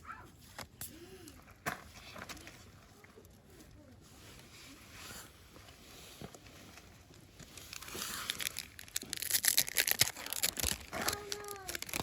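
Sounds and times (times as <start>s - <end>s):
foil pack crinkling and tearing: 7.1s - 12.0s.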